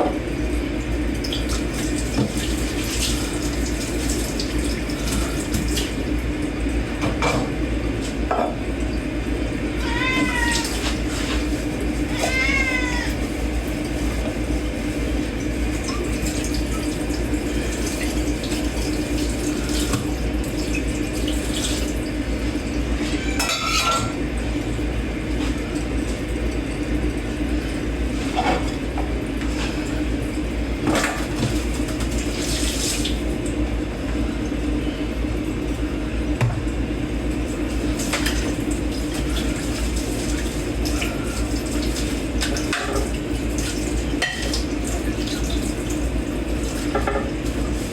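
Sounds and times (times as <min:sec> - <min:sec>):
water running in sink: 0:00.0 - 0:47.9
dishes and cutlery clinking: 0:23.4 - 0:24.2.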